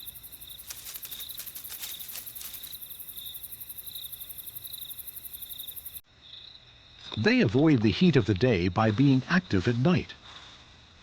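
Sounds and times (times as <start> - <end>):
insects ticking: 0.0 - 7.3
crickets chirping: 0.0 - 11.0.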